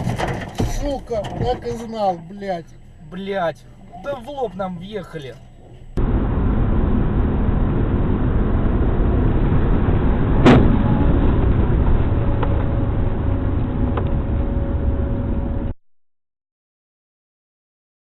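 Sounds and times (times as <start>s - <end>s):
car road and engine rumble: 0.0s - 15.8s
sharp bang: 10.2s - 11.7s.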